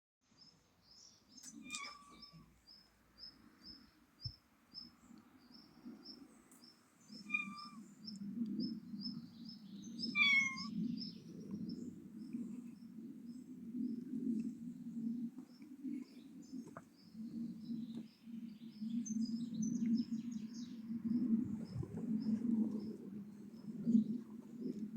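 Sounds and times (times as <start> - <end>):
cat chirping meows: 1.4 - 2.4, 7.1 - 7.8, 10.1 - 10.7.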